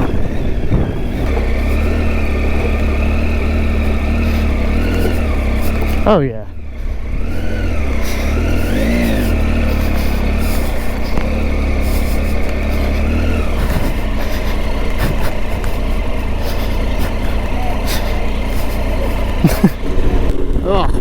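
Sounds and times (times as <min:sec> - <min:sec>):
wind noise: 0:00.0 - 0:02.0
motorcycle engine running: 0:00.0 - 0:21.0.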